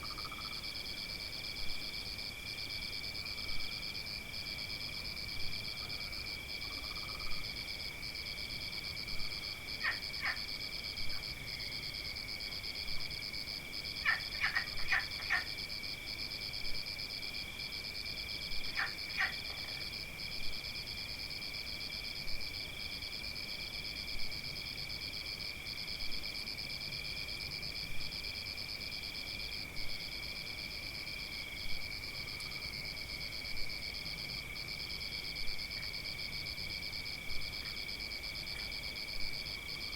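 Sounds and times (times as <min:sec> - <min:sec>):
insects trilling: 0:09.2 - 0:21.2.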